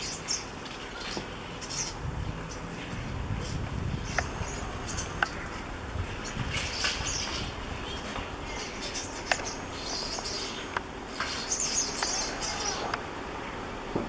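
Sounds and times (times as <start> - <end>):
thrushes chattering: 0.0 - 13.9
sharp clicks: 4.0 - 5.6, 8.5 - 13.2.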